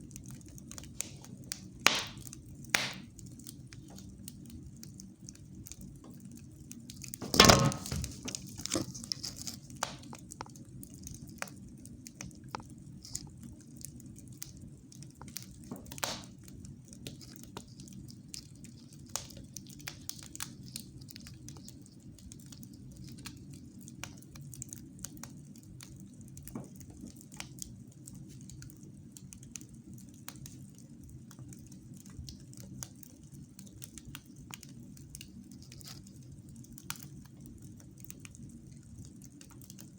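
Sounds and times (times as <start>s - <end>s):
wood fire crackling: 0.0s - 39.9s
loud sharp pop: 1.9s - 2.2s, 2.8s - 3.0s, 7.2s - 8.2s, 16.0s - 16.3s.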